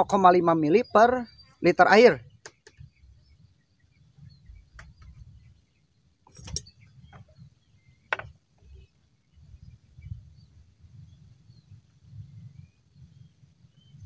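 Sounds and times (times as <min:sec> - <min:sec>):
faint bird chirps: 0:00.0 - 0:14.0
objects clicking and knocking: 0:06.3 - 0:06.7.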